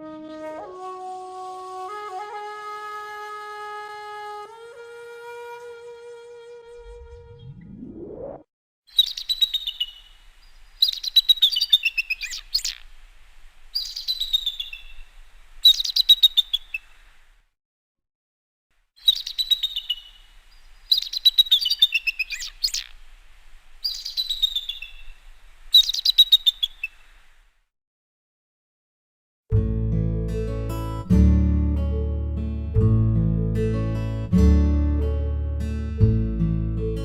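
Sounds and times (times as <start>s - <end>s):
eagle chattering calls: 10.8s - 12.9s, 15.6s - 16.9s, 19.0s - 20.2s, 20.9s - 23.0s, 23.8s - 25.1s, 25.7s - 27.1s.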